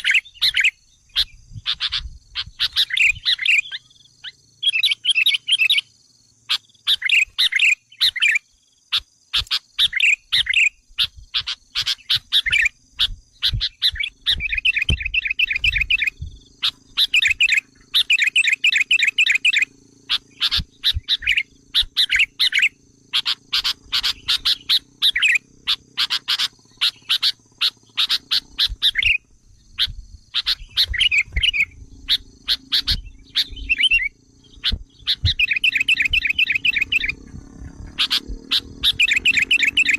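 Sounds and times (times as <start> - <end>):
bulbul chattering call: 0.0 - 39.9.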